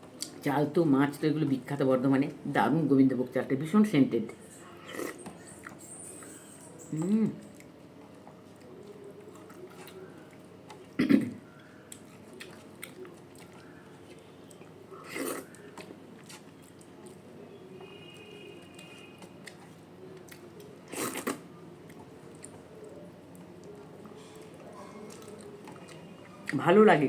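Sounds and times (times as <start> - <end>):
person chewing: 4.7 - 26.6
small eating clicks: 6.9 - 17.2.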